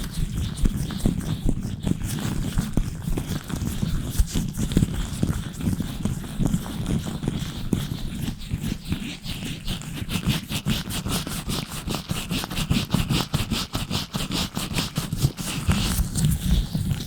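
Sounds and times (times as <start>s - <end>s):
gloved fingers scratching microphone: 0.0s - 17.0s.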